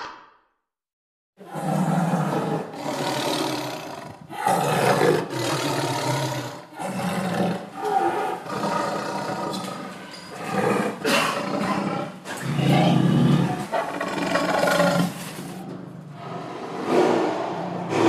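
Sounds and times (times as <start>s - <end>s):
big cat roaring: 1.4s - 18.0s.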